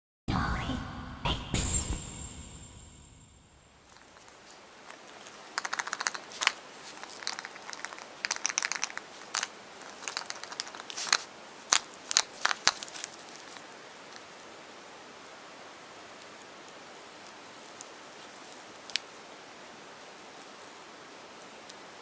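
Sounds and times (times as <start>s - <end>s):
foil wrapper crinkling and tearing: 4.0s - 13.7s.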